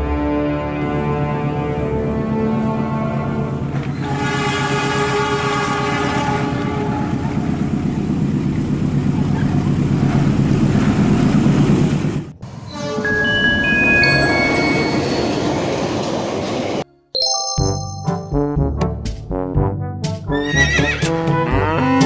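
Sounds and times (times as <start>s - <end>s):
train passing with rail clatter: 1.3s - 16.8s
train horn: 1.8s - 7.8s.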